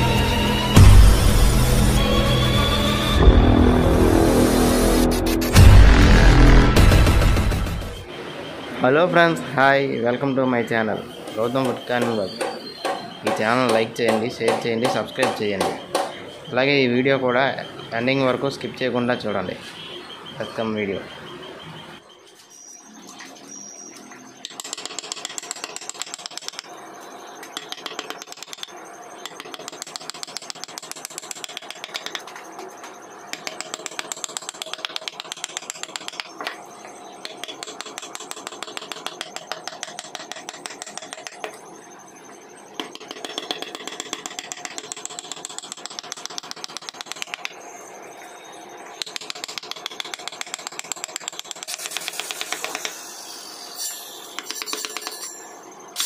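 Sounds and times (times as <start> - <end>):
carving tool tapping wood: 11.3 - 16.2, 24.4 - 26.6, 27.6 - 32.3, 33.3 - 36.6, 37.2 - 41.6, 42.8 - 47.6, 49.0 - 53.0.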